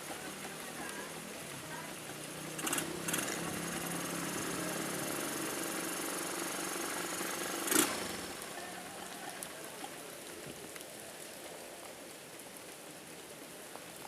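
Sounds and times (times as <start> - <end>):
light rain hissing: 0.0 - 14.0
engine running steadily: 1.8 - 9.4.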